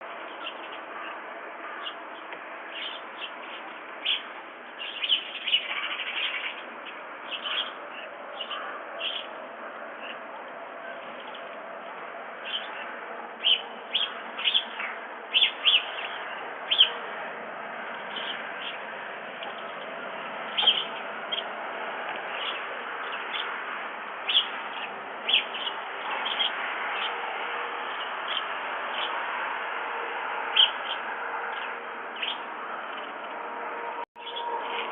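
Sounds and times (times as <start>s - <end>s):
birds chirping and calling: 0.1s - 29.4s, 30.4s - 33.6s, 34.2s - 34.9s.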